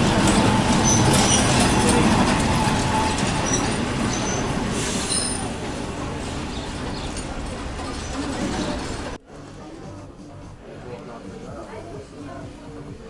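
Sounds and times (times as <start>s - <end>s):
train rolling along track: 0.0s - 10.4s
high-pitched wheel squeals: 0.3s - 5.6s.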